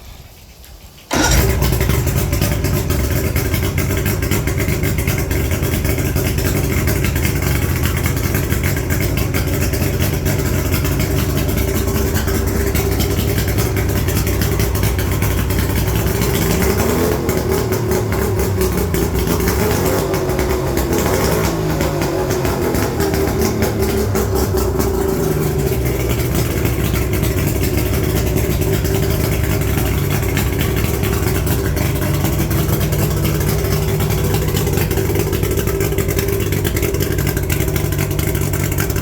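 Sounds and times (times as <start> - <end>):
outboard motor running: 1.1 - 39.0.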